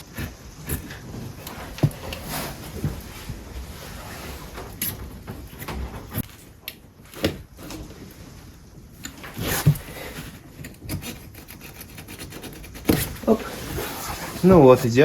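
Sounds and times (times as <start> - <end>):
knife cutting rubber: 0.0 - 3.0, 9.3 - 14.7.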